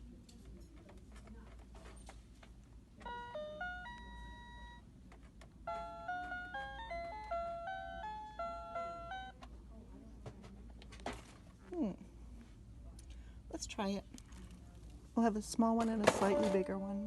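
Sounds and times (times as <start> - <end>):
toy piano notes: 3.0 - 4.8, 5.6 - 9.4.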